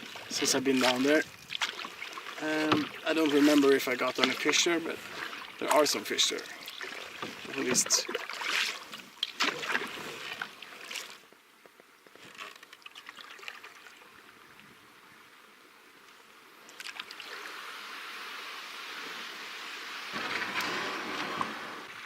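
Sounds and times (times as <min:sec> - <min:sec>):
rushing water: 0:00.0 - 0:11.3, 0:12.4 - 0:14.6, 0:16.4 - 0:22.0
paddle splashing water: 0:00.0 - 0:11.4, 0:12.1 - 0:14.3, 0:16.7 - 0:22.0
light drips and knocks: 0:05.6 - 0:08.3.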